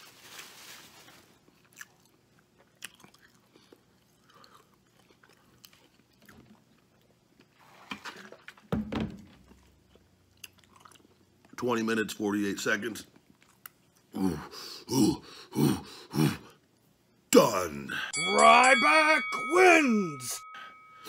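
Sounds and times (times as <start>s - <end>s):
person chewing food: 1.4s - 7.6s, 9.4s - 11.6s.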